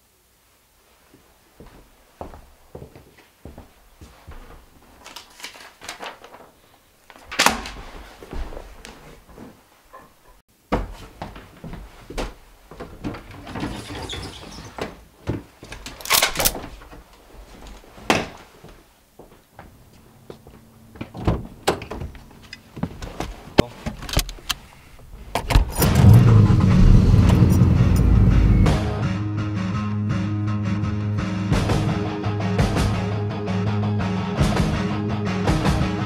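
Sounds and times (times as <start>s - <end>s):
car engine starting and running: 25.2s - 29.0s.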